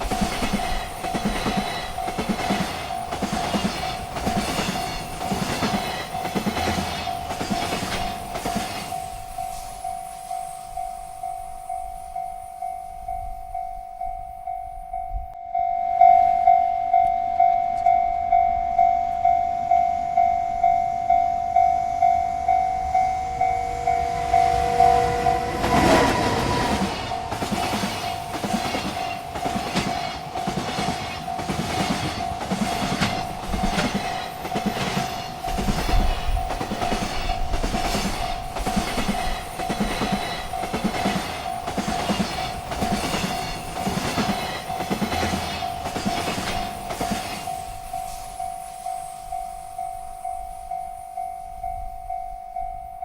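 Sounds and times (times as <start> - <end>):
freight train wheels clattering: 0.0 - 10.6, 21.7 - 51.1
railroad crossing bell ringing: 0.0 - 53.0.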